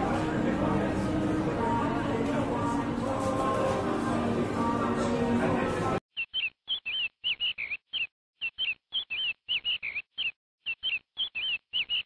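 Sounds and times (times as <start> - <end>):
small bird chirps: 6.1 - 12.0.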